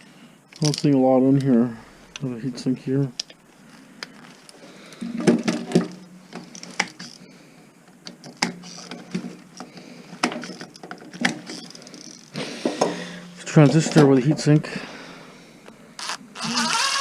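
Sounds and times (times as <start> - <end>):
low steady hum: 0.0 - 17.0
clicks and knocks of parts handled: 0.5 - 2.3, 3.1 - 7.2, 7.8 - 13.0.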